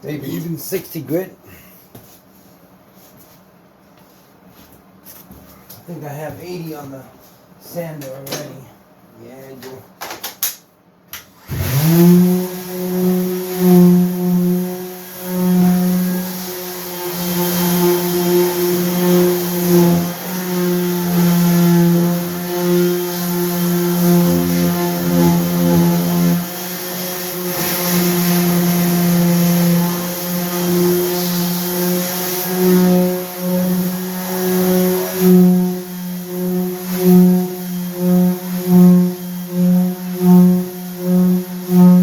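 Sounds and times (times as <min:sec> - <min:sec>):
orbital sander on wood: 0:11.4 - 0:42.0.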